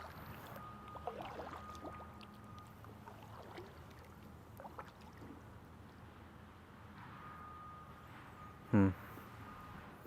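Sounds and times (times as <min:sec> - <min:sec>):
faint water trickling and dripping: 0:00.0 - 0:06.1.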